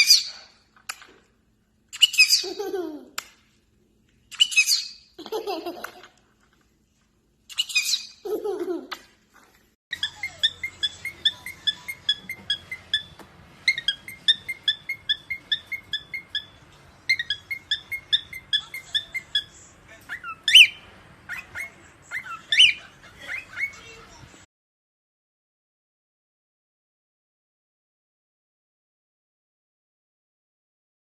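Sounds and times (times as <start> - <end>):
parrot chirping: 0.0 - 0.6, 1.9 - 2.9, 4.3 - 5.2, 7.5 - 8.4, 9.9 - 24.0
parrot whistled calls: 9.9 - 19.5, 20.2 - 23.7.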